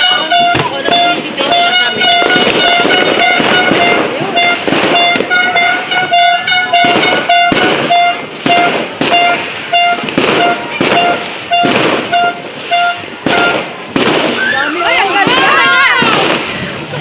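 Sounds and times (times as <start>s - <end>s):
horn short toots: 0.0s - 13.8s
fireworks banging: 0.0s - 17.0s.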